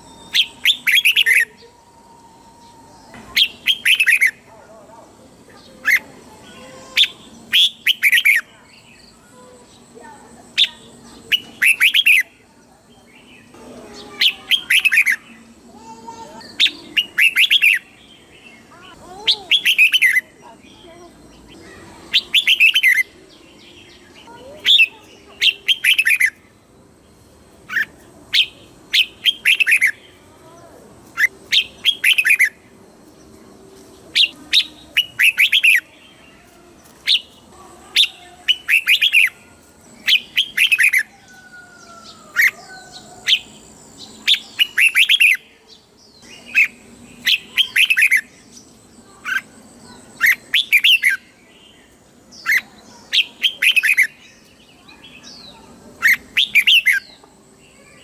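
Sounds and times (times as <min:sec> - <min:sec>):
bird singing whistled notes: 0:00.0 - 0:04.4, 0:07.0 - 0:09.2, 0:10.6 - 0:12.4, 0:16.4 - 0:18.7, 0:21.3 - 0:26.4, 0:31.2 - 0:32.6, 0:34.2 - 0:36.3, 0:40.0 - 0:48.6, 0:49.2 - 0:57.2.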